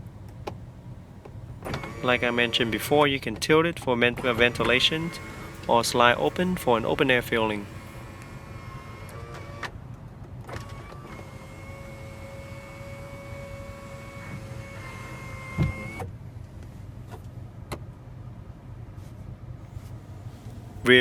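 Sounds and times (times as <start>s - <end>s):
moonroof motor whining: 0.0s - 9.8s, 10.5s - 16.1s, 19.6s - 21.0s.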